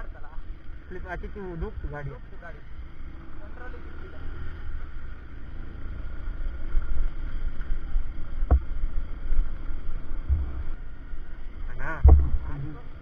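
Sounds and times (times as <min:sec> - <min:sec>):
motorcycle engine rumbling: 0:00.0 - 0:13.0
sharp knock: 0:12.0 - 0:12.4.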